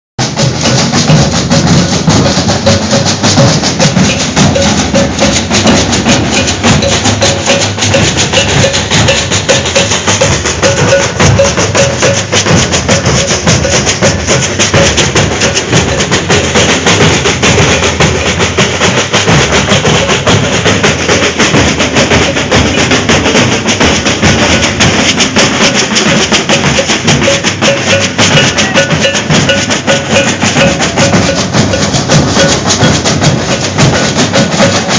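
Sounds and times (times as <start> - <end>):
deep bass drums: 0.2 - 34.9
shakers: 0.2 - 34.9
snare drums: 0.2 - 34.9
repeating metallic note: 24.5 - 33.8.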